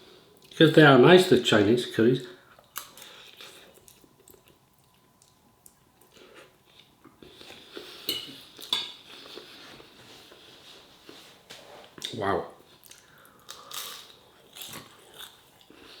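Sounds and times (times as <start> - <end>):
cutlery clinking against a dish: 8.0 - 9.0.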